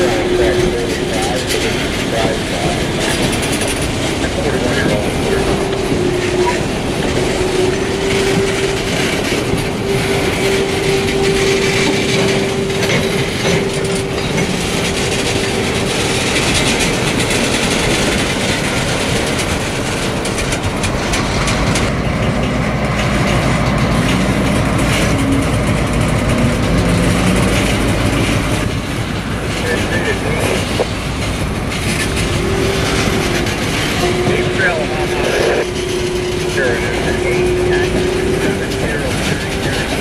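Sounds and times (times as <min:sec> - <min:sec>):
wheels clicking over rail joints: 0:00.0 - 0:40.0
steady high tone: 0:04.2 - 0:18.3.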